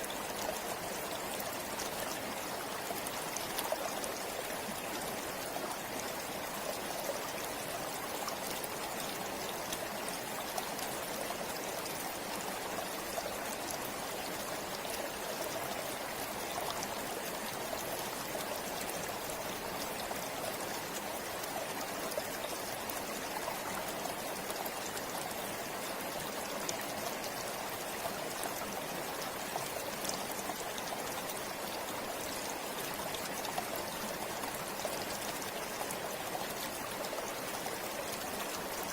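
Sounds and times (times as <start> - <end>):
river flowing over rocks: 0.0 - 38.9.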